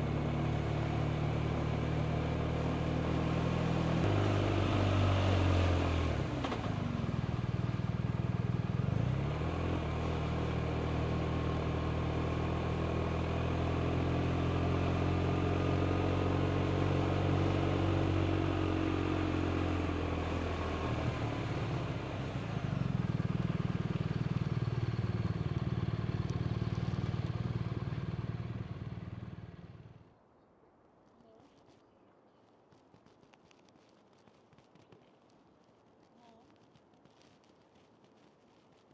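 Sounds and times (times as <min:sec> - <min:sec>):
motorcycle engine running: 0:00.0 - 0:30.1
road noise: 0:00.0 - 0:38.9.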